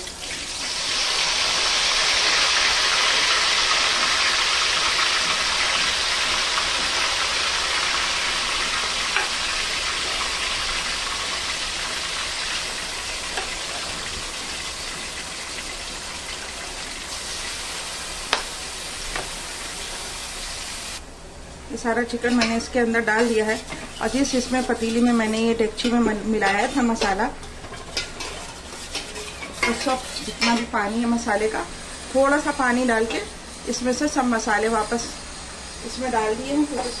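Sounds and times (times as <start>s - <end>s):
chicken sizzling in hot oil: 0.0s - 21.0s, 22.4s - 37.0s.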